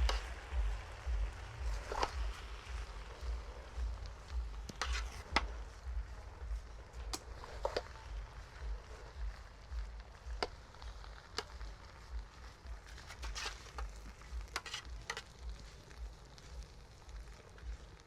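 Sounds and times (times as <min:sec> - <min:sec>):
low uneven rumble: 0:00.0 - 0:18.0
utensil scraping a pot: 0:04.6 - 0:05.6, 0:12.8 - 0:15.4.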